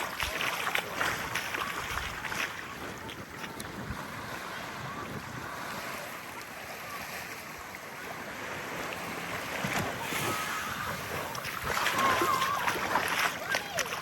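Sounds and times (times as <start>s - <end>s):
small waves lapping on sand: 0.0s - 14.0s.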